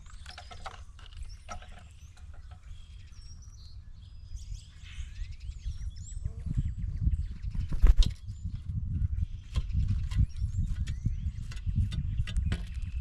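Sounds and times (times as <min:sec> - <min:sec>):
animals clicking and tapping: 0:00.0 - 0:03.2, 0:09.5 - 0:13.0
birds chirping and calling: 0:00.0 - 0:13.0
low wind rumble: 0:00.0 - 0:13.0.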